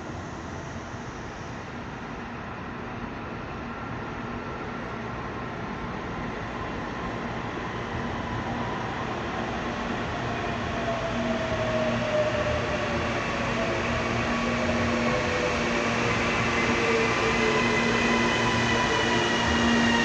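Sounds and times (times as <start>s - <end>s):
electric train passing: 6.8s - 20.0s.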